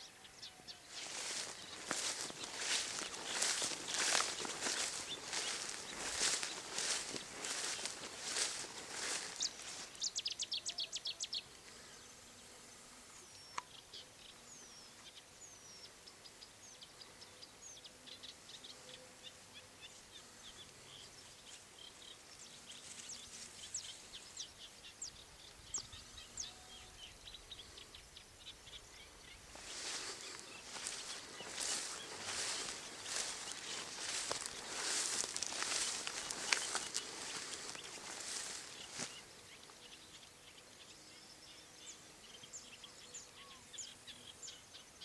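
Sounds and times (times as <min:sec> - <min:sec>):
small birds chirping: 0:00.0 - 0:12.5, 0:13.2 - 0:45.0
footsteps rustling through grass: 0:00.8 - 0:10.4, 0:22.5 - 0:24.5, 0:29.2 - 0:39.3.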